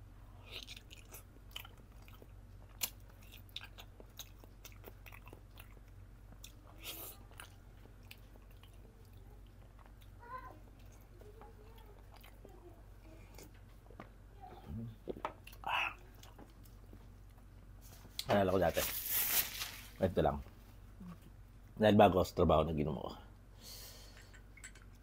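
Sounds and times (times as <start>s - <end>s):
low steady hum: 0.0s - 25.0s
chewing soft food: 0.3s - 14.0s, 15.3s - 18.2s.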